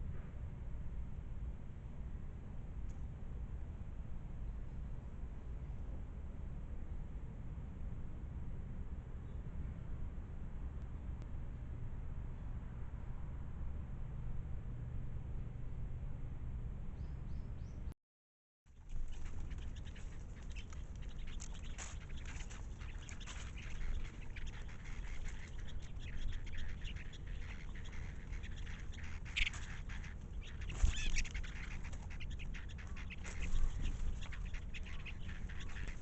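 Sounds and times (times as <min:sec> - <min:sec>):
small clicks and rustles: 0:18.8 - 0:25.8
steady low rumble: 0:18.8 - 0:36.0
short bird calls: 0:18.9 - 0:36.0.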